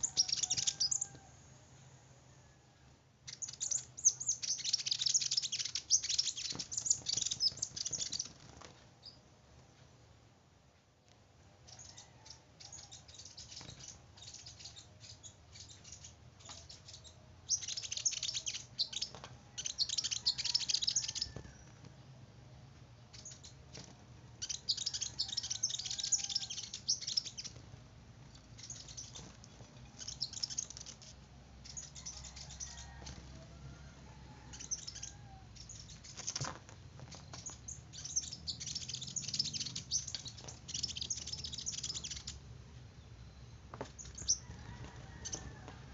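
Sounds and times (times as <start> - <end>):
small bird twittering: 0.0 - 1.2, 3.2 - 9.2, 11.7 - 21.7, 23.1 - 27.6, 28.3 - 33.2, 34.3 - 42.4, 43.3 - 45.6.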